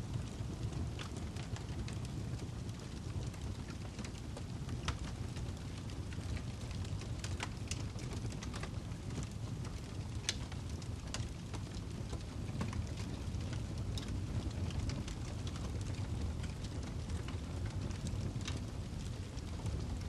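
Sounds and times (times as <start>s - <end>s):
low rumble of flames: 0.0s - 20.0s
wood fire crackling and popping: 0.0s - 20.0s.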